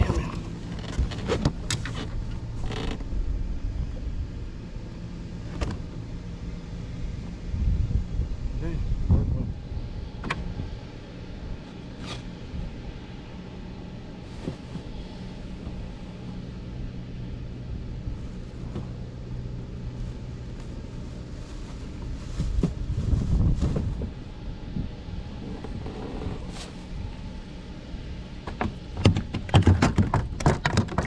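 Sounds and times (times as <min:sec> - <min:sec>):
low rumble and hum: 0:00.0 - 0:31.0
wind gust on microphone: 0:07.4 - 0:10.8, 0:22.0 - 0:27.4.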